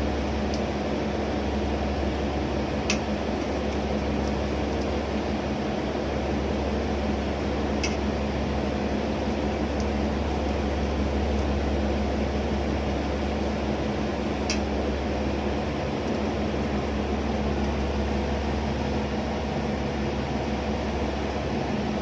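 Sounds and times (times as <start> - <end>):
ship machinery drone: 0.0 - 22.0.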